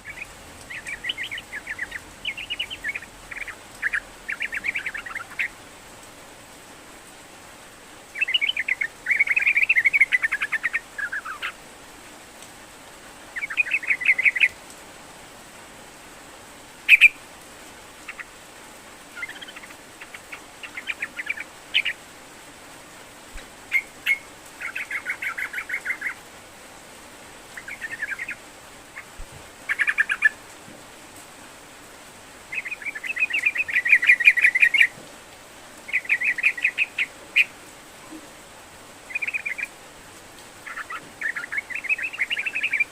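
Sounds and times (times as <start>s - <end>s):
bird chattering song: 0.0s - 5.6s, 8.2s - 11.6s, 13.4s - 14.6s, 16.9s - 17.2s, 18.1s - 18.3s, 19.2s - 22.0s, 23.7s - 26.2s, 27.6s - 28.4s, 29.0s - 30.4s, 32.5s - 34.9s, 35.9s - 37.5s, 39.1s - 39.7s, 40.6s - 42.9s.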